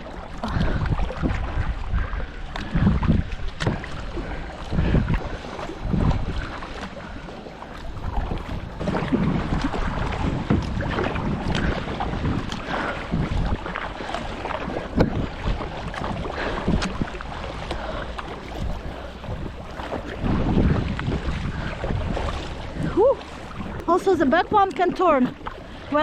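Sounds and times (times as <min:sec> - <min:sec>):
paddles splashing in water: 0:00.0 - 0:26.0
wind on the microphone: 0:00.0 - 0:26.0
paddle knocks: 0:02.5 - 0:06.8, 0:07.7 - 0:22.9.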